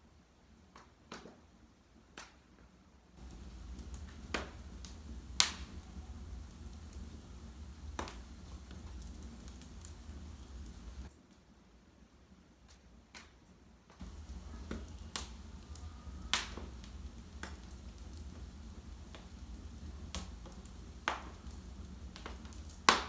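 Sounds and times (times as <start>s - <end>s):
wood fire crackling: 3.2s - 11.1s, 14.0s - 23.0s.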